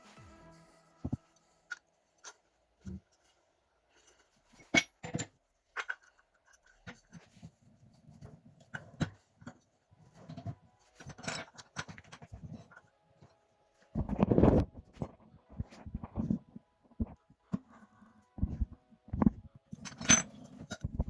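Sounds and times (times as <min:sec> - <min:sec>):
tools and parts clicking: 0:19.8 - 0:21.0.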